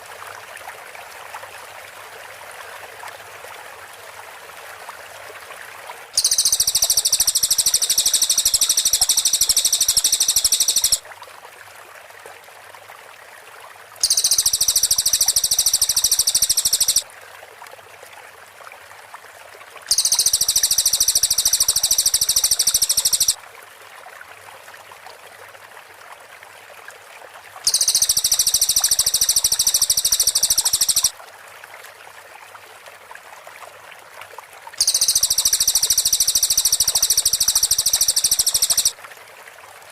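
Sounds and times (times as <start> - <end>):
bird singing high-pitched bursts: 6.2 - 11.0, 14.0 - 17.0, 19.9 - 23.4, 27.7 - 31.1, 34.8 - 38.9
faint steady hiss: 6.2 - 11.2, 13.9 - 17.0, 19.9 - 23.4, 27.6 - 31.1, 34.8 - 39.0.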